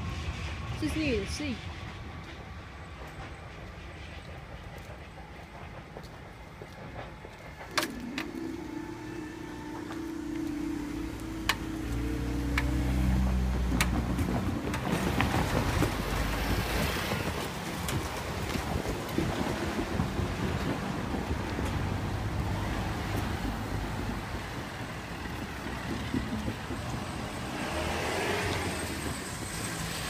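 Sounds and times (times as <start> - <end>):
vehicle engine running: 7.6 - 30.0
steady hum: 7.7 - 13.8.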